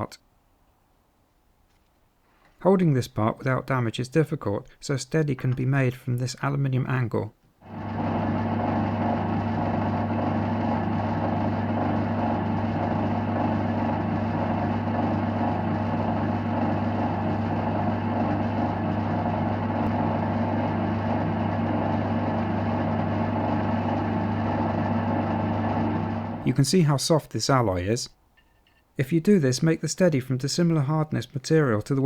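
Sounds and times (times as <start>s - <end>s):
metalworking lathe motor humming: 7.7s - 26.5s.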